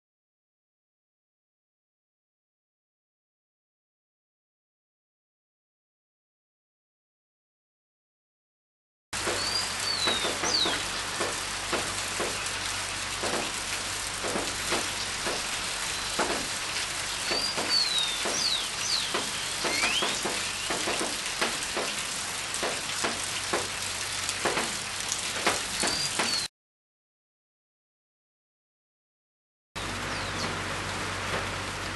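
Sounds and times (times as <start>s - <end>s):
rain hiss: 9.2s - 26.5s, 29.8s - 31.9s
bird high sliding chirps: 17.2s - 20.7s.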